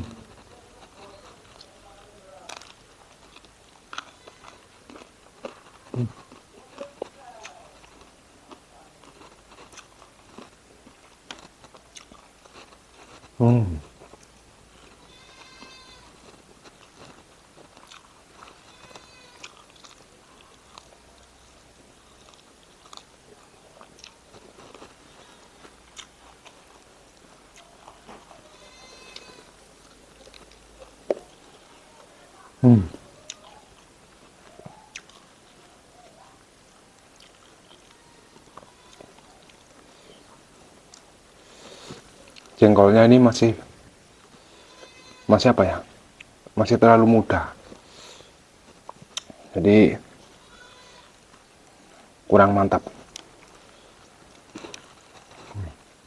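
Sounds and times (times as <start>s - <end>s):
close-up chewing of food: 0.0s - 56.0s
mouth clicks and smacks: 4.9s - 14.4s, 48.8s - 49.5s.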